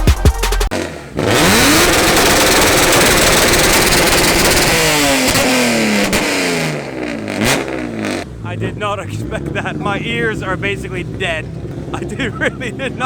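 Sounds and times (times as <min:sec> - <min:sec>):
music: 0:00.0 - 0:00.7
engine revving through loud exhaust: 0:00.7 - 0:13.0.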